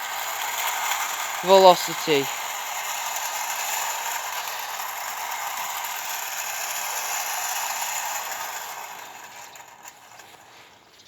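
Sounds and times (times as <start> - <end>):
clockwork gears whirring: 0.0 - 10.5
wheels rattling on tin track: 0.0 - 11.0.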